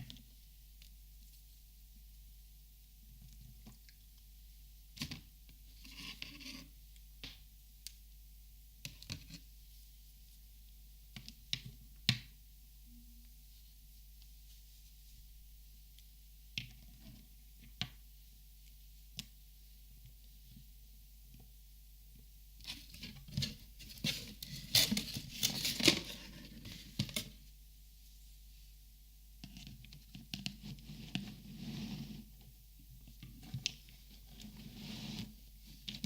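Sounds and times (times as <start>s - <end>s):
rustling: 13.4s - 15.8s, 22.6s - 28.8s.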